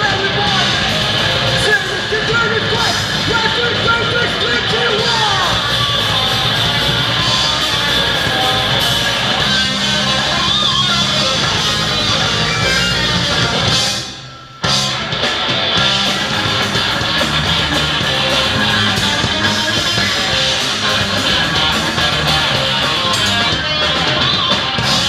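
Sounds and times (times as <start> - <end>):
rock music with guitar: 0.0 - 25.0.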